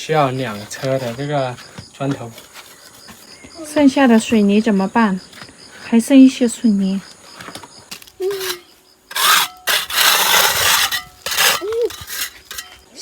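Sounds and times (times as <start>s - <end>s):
tool scraping wet cement: 0.2s - 3.2s, 7.9s - 12.9s.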